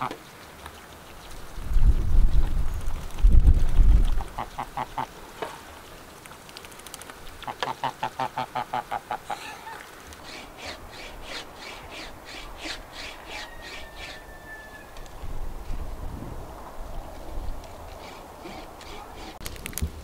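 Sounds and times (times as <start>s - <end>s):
farmyard birds calling: 0.0s - 1.6s, 4.0s - 6.2s, 7.3s - 15.8s, 17.0s - 19.4s.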